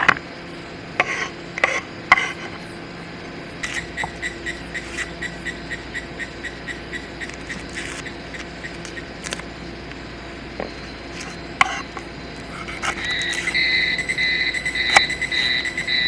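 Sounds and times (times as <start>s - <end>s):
insects chirping: 0.0s - 16.0s
sharp handling clicks: 7.2s - 10.0s.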